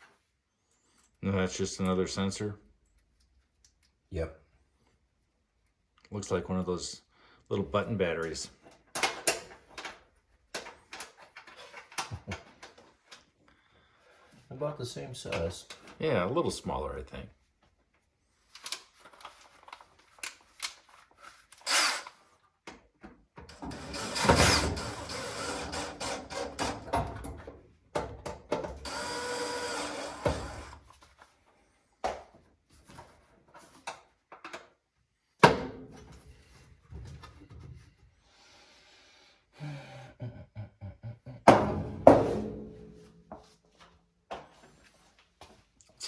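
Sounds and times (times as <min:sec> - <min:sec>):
dryer parts clicking and clunking: 0:08.6 - 0:12.9, 0:22.7 - 0:28.9
cordless drill running: 0:28.8 - 0:30.8.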